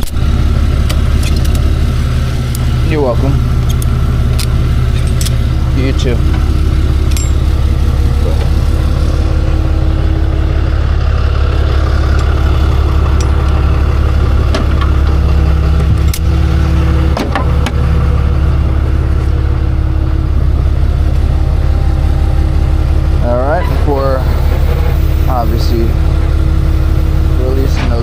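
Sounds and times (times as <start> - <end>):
truck engine idling: 0.0 - 28.0.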